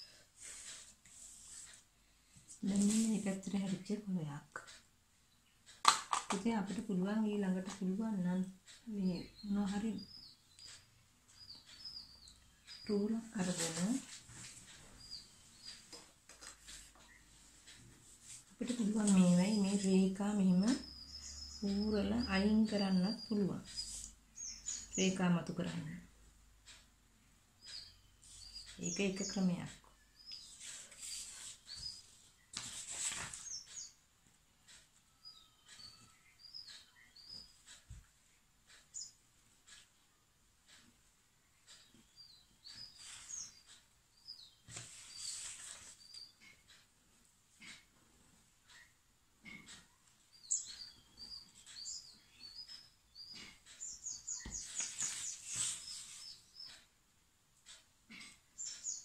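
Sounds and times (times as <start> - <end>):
small birds chirping: 0.0 - 57.0, 57.6 - 59.0
paper rustling: 32.5 - 33.5, 44.7 - 46.0, 54.6 - 56.2.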